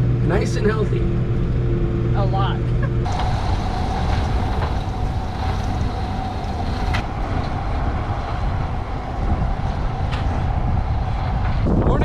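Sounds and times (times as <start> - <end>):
engine whine: 0.0 - 12.0
tractor engine running: 3.0 - 11.9.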